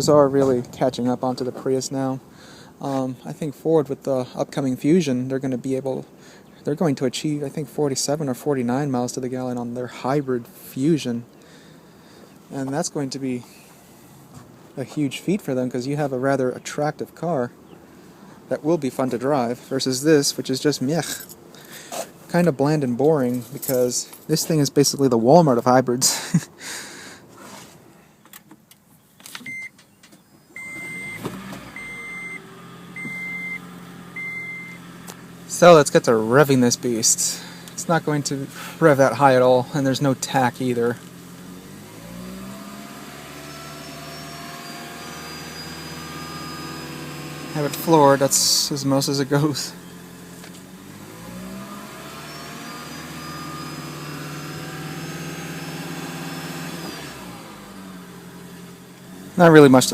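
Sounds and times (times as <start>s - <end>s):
electronic warning beeps: 29.5s - 29.8s, 30.6s - 34.8s
car engine at top revs: 30.6s - 59.9s.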